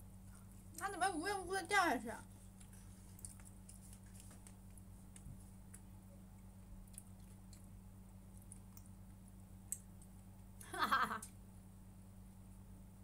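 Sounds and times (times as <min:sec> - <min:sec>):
steady low hum: 0:00.0 - 0:13.0
faint chewing: 0:02.2 - 0:10.7
small irregular clicks: 0:02.5 - 0:11.4.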